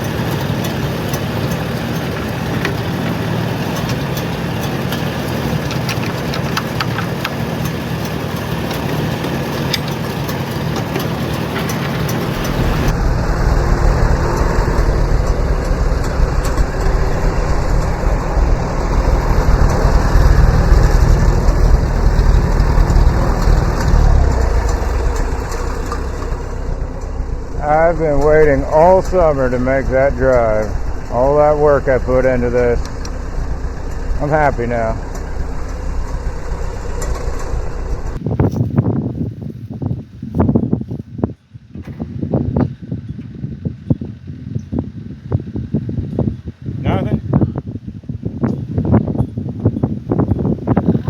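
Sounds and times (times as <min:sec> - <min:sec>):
tractor engine running: 0:00.0 - 0:38.8, 0:49.3 - 0:51.0.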